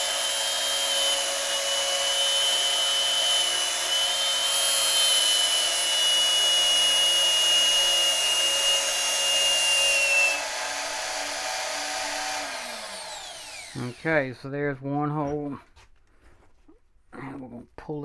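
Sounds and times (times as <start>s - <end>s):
electric drill whining: 0.0s - 14.2s.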